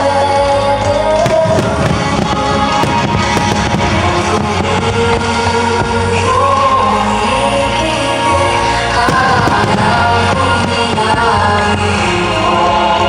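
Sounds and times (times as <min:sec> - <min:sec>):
music playing: 0:00.0 - 0:13.0
fireworks bursting and crackling: 0:00.9 - 0:13.0.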